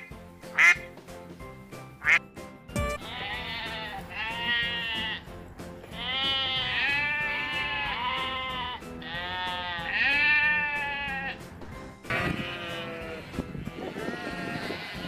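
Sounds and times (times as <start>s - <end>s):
background music: 0.0s - 15.0s
sheep bleating: 3.0s - 5.2s, 5.9s - 11.4s, 12.1s - 15.0s.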